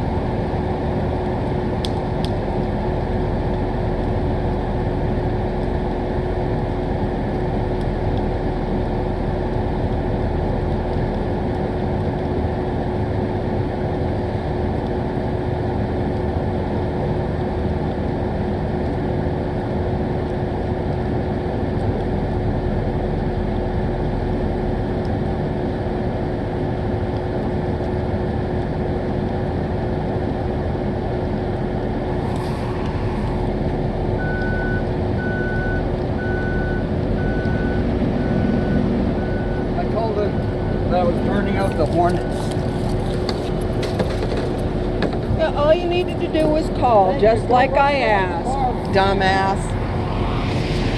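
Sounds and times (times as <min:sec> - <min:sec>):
constant hum: 0:00.0 - 0:50.9.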